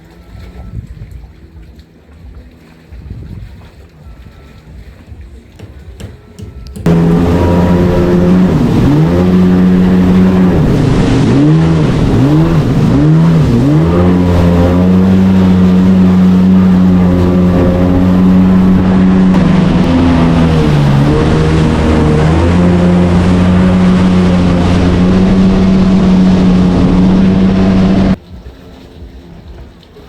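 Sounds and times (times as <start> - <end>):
jet ski engine running hard: 6.7 - 30.0.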